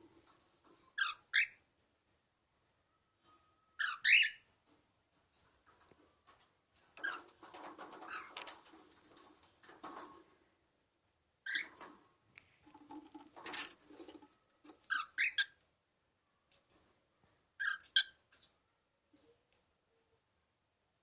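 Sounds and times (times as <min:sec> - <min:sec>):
cockatiel chirping and squawking: 0:01.0 - 0:01.6, 0:03.8 - 0:04.4, 0:11.5 - 0:11.8, 0:14.9 - 0:15.6, 0:17.6 - 0:18.2.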